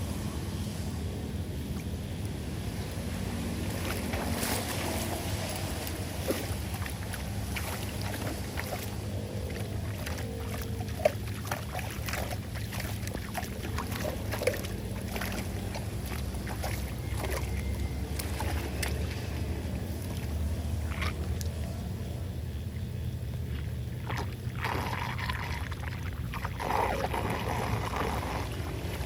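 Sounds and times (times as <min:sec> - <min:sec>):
water rushing into drain: 0:03.6 - 0:19.2, 0:23.4 - 0:29.0.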